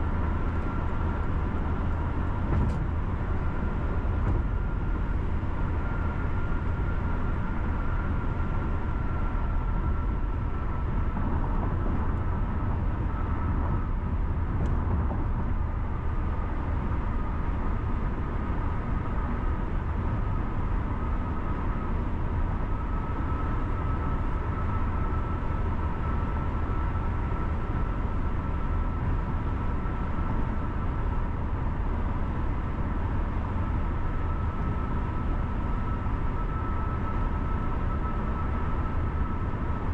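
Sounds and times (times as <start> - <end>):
faint thin whine: 19.2 - 39.9.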